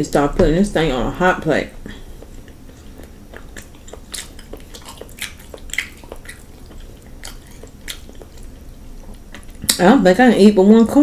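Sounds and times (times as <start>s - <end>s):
person chewing and smacking lips: 1.9s - 9.8s.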